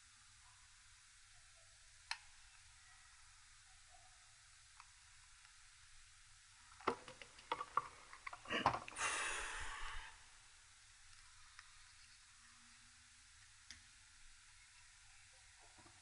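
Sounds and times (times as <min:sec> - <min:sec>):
short hiss: 0:08.9 - 0:10.5.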